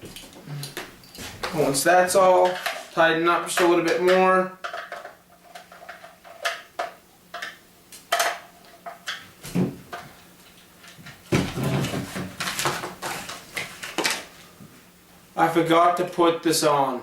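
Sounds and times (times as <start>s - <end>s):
plastic parts clicking and knocking: 3.5s - 9.2s
plastic clattering and rattling: 3.6s - 10.1s.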